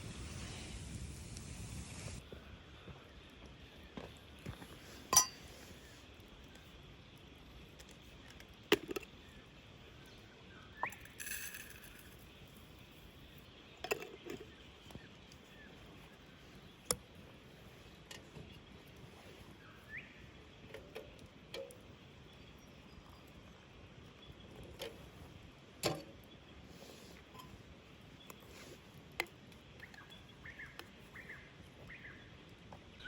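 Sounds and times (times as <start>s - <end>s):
brief hiss: 0.0s - 2.2s.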